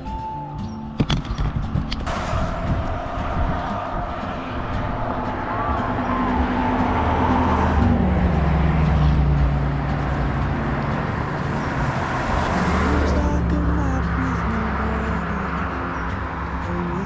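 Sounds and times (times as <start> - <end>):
motor vehicle engine running: 0.0 - 17.0
road traffic: 0.0 - 17.0.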